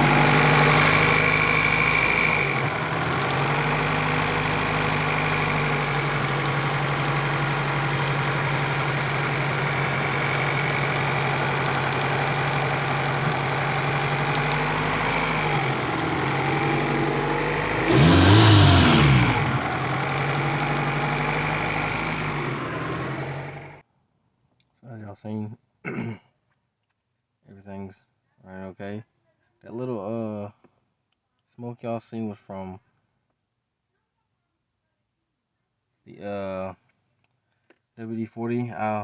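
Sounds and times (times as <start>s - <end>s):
car engine idling and revving: 0.0s - 23.8s.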